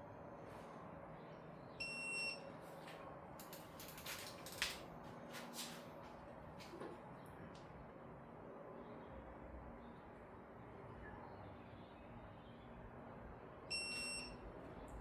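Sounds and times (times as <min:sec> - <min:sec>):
hand tools clicking and clinking: 0:03.4 - 0:04.8.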